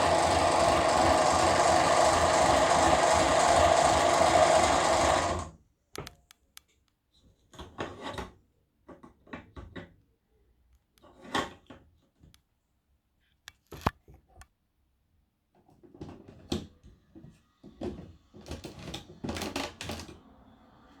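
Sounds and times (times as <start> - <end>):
small toy motor running: 0.0 - 5.5.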